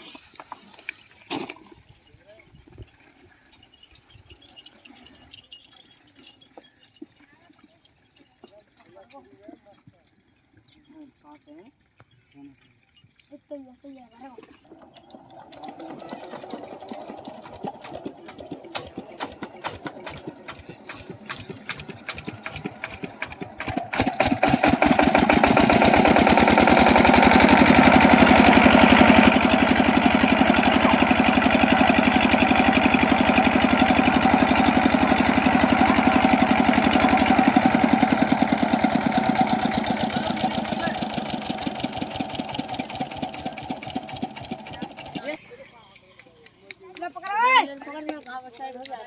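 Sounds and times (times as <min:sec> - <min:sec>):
diesel engine starting: 0:14.6 - 0:45.7.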